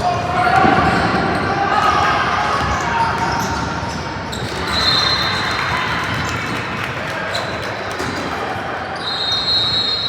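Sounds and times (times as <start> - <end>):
high whistle-like tone: 9.0 - 10.0.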